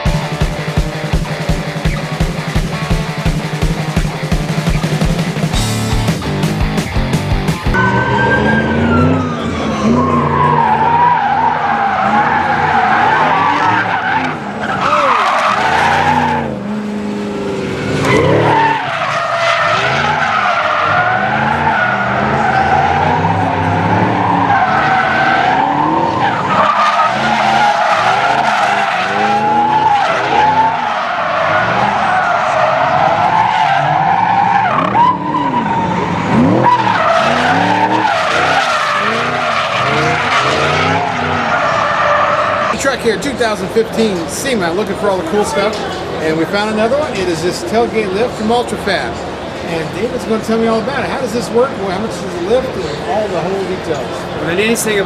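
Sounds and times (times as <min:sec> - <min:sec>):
engine revving: 0:00.0 - 0:41.8
tires squealing: 0:00.0 - 0:55.0.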